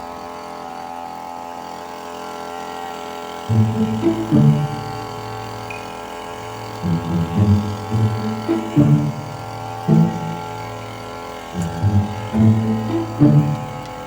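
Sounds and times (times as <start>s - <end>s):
low plucked or drummed notes: 3.5s - 5.4s, 6.8s - 10.6s, 11.6s - 14.0s
steady music drone: 3.5s - 14.0s.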